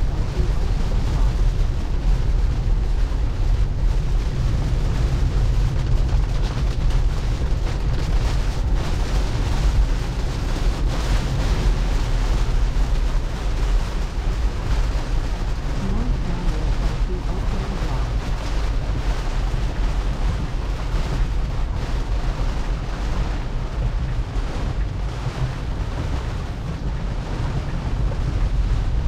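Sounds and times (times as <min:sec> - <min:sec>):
heavy rain: 0:00.0 - 0:29.0
tyres on wet road: 0:00.0 - 0:29.0.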